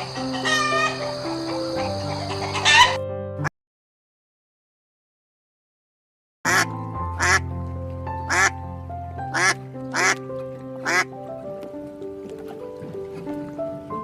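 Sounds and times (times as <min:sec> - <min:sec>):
duck quacking: 0:00.0 - 0:03.0, 0:06.5 - 0:07.4, 0:08.3 - 0:08.6, 0:09.3 - 0:10.2, 0:10.8 - 0:11.1
background music: 0:00.0 - 0:03.5, 0:06.5 - 0:14.0.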